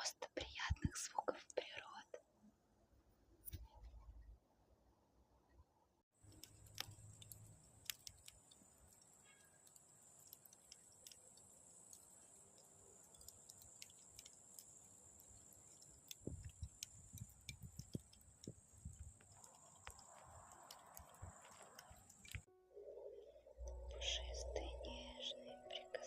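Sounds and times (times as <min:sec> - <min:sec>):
campfire crackling and popping: 0:06.2 - 0:22.5
steady high hiss: 0:06.3 - 0:22.5.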